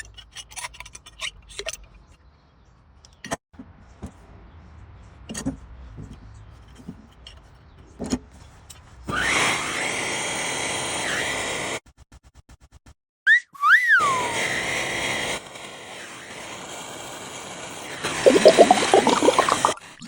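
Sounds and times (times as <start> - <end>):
power tool motor whining: 9.1 - 11.7.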